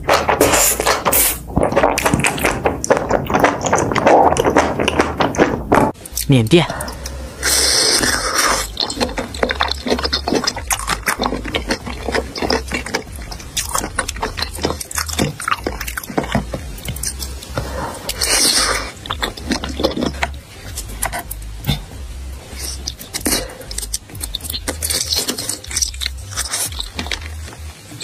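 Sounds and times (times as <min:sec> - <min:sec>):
wet chewing and lip-smacking: 0:00.8 - 0:28.0
hissing slurp: 0:06.8 - 0:21.1.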